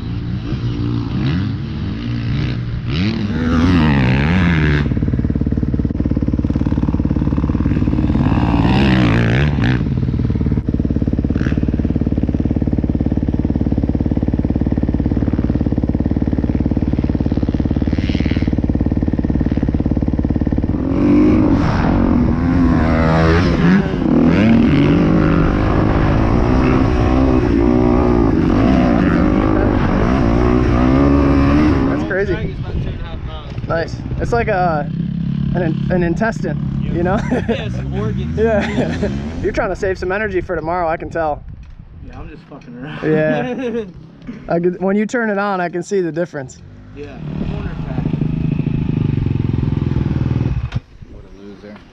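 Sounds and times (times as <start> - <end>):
dirt bike engine revving: 0.0 - 40.9, 43.0 - 51.9.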